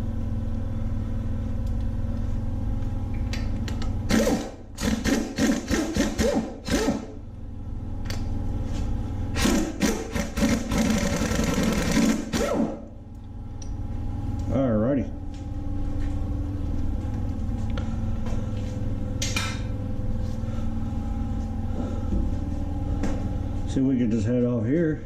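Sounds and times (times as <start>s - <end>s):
steady low hum: 0.0s - 25.0s
power wrench rattling: 4.1s - 7.0s, 9.4s - 12.7s.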